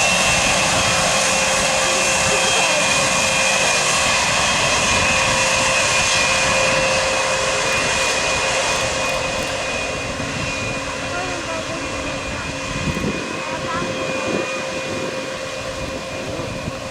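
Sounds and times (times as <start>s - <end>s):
jet engines whining: 0.0s - 16.9s.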